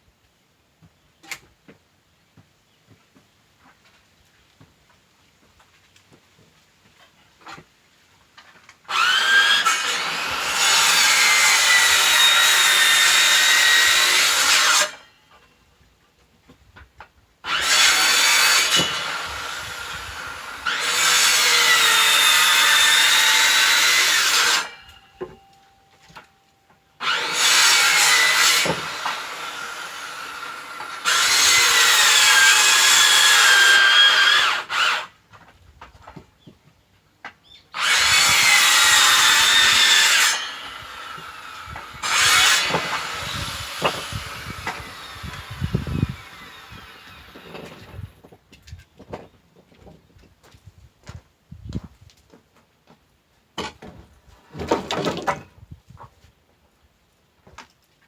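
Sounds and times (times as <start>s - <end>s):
power tool cutting wood: 8.9s - 15.1s, 17.4s - 25.4s, 27.0s - 35.2s, 37.8s - 48.2s.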